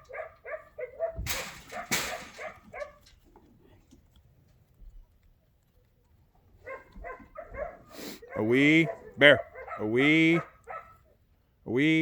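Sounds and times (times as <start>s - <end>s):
dog barking: 0.0s - 3.1s, 6.6s - 11.2s.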